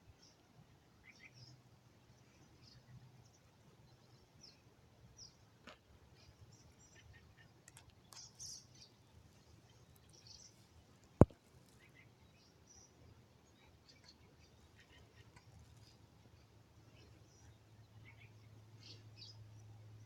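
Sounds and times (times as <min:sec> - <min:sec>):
songbirds chirping and whistling: 0:06.1 - 0:20.0.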